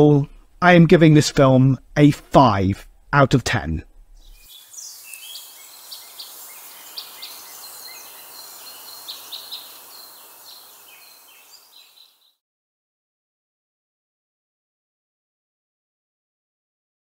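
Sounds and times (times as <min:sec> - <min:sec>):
birds chirping: 0:03.9 - 0:12.4
outdoor hiss: 0:04.3 - 0:12.3.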